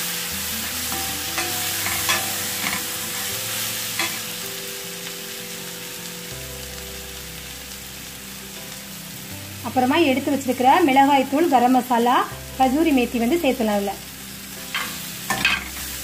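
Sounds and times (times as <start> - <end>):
food sizzling in hot oil: 0.0 - 16.0
metal spoon scraping a pan: 0.8 - 4.4, 14.7 - 16.0.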